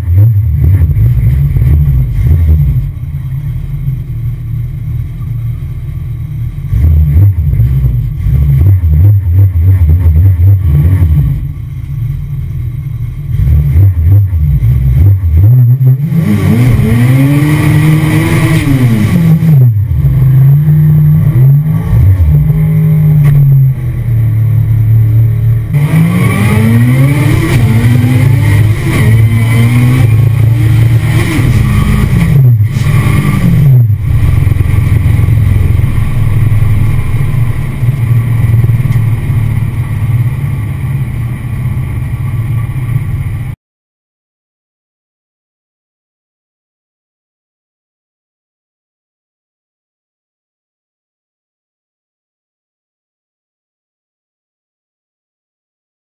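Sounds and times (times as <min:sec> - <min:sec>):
car engine revving: 0:00.0 - 0:43.6.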